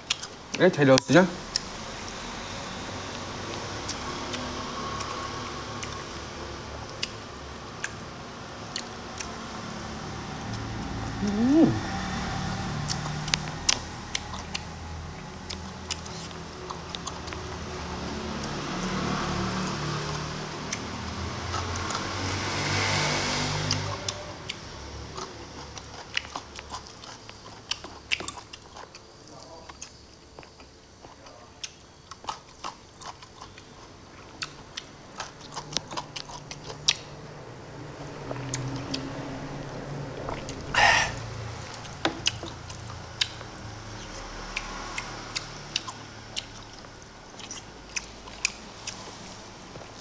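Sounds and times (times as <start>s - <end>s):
close-mouthed chewing: 0.0s - 0.6s, 6.8s - 9.4s, 12.8s - 19.0s, 23.6s - 50.0s
wet mouth clicks: 40.4s - 49.0s.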